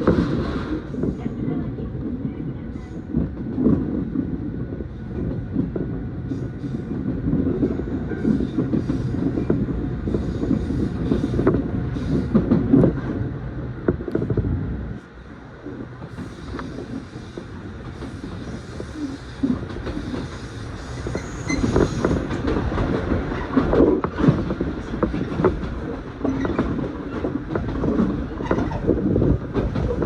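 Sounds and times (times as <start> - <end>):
train carriage rumbling on track: 0.0 - 30.0
wheels clicking over rail joints: 16.4 - 30.0.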